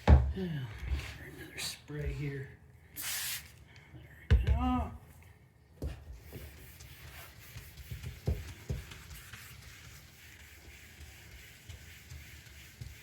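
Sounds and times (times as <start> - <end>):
wet sanding plastic: 6.2 - 13.0.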